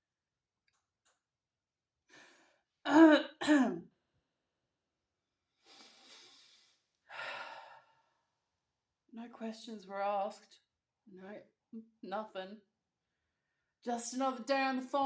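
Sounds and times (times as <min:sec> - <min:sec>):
woman coughing: 0:02.9 - 0:03.8
faint breath: 0:05.6 - 0:08.2.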